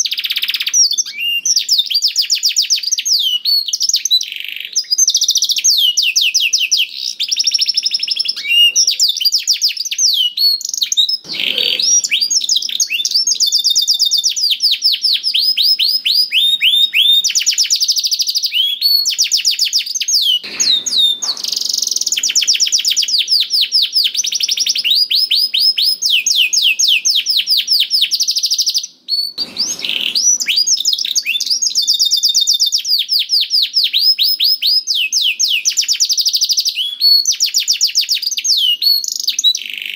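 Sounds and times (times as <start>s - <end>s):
canary singing trills: 0.0s - 39.9s
harsh low bird bursts: 11.2s - 17.4s, 29.1s - 31.6s.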